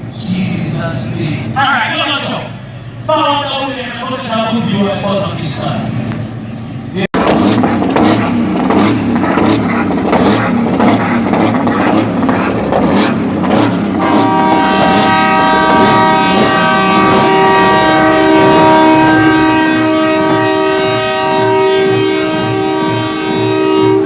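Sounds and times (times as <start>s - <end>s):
air horns sounding chord: 7.2s - 24.0s
loud pulsing noise: 7.2s - 24.0s.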